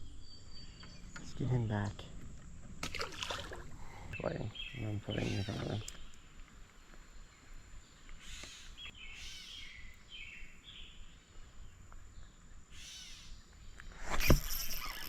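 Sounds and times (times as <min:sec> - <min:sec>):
low outdoor background noise: 0:00.0 - 0:15.0
faint bird calls: 0:03.7 - 0:15.0.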